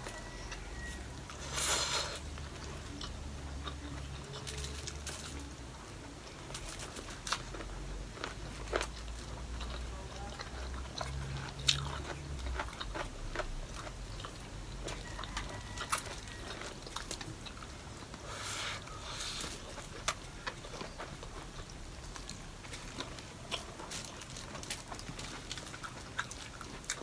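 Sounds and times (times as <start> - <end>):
person chewing food: 0.0 - 27.0.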